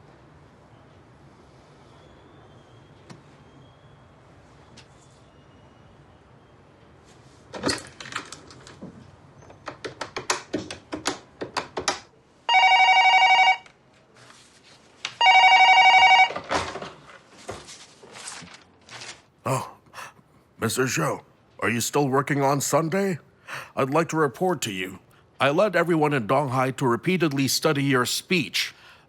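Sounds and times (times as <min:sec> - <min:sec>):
telephone ringing: 0:12.5 - 0:13.7, 0:15.2 - 0:16.5.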